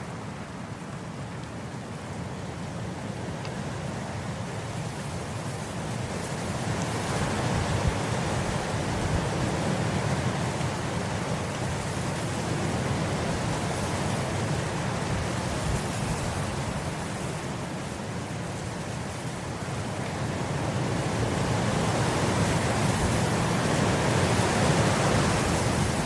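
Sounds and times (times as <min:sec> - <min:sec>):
wind blowing across grass: 0:00.0 - 0:26.0.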